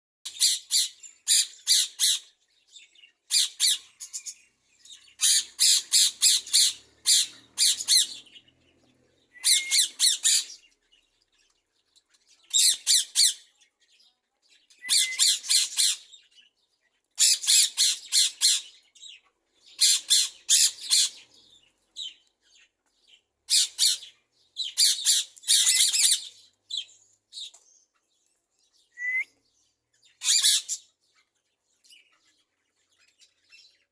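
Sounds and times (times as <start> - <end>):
parakeets squawking: 0.3 - 2.3, 3.3 - 8.6, 9.4 - 10.7, 14.8 - 16.1, 17.2 - 18.8, 19.6 - 21.3, 23.5 - 26.4, 30.2 - 30.8.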